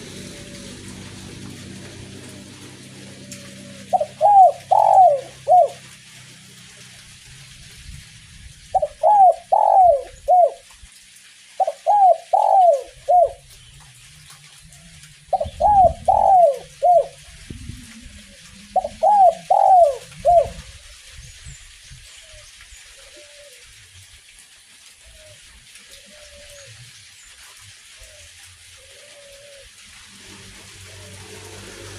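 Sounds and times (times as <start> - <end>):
dove cooing: 0.0 - 6.0, 8.7 - 10.7, 11.6 - 13.5, 14.9 - 21.2, 22.2 - 23.7, 25.0 - 26.8, 27.8 - 29.9
light drizzle hiss: 0.0 - 31.9.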